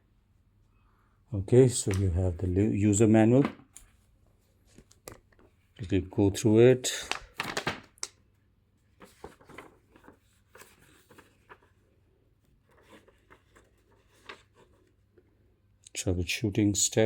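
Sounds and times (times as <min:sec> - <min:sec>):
paper pages rustling: 0:07.0 - 0:08.2, 0:08.8 - 0:15.0.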